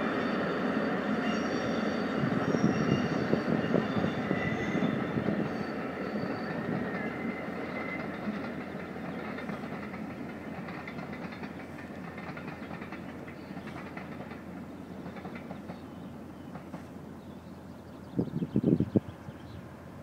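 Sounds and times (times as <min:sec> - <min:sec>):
steam train clickety-clack: 0:00.0 - 0:17.8.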